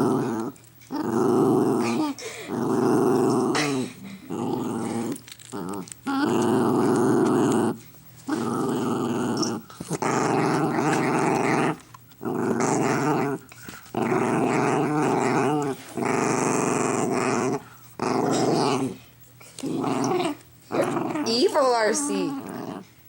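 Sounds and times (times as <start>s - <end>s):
dog growling: 0.0s - 23.0s.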